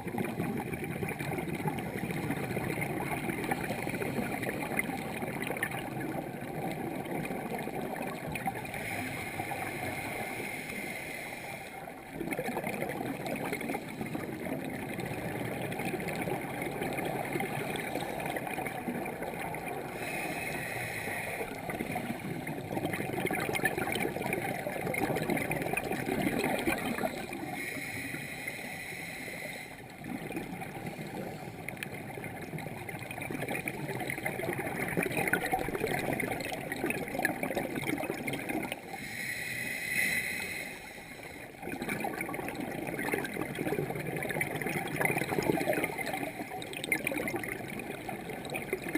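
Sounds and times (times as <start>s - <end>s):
exhaled bubbles gurgling: 0.0s - 48.9s
regulator inhale hiss: 8.8s - 11.9s, 20.0s - 21.6s, 27.3s - 29.9s, 38.9s - 41.6s.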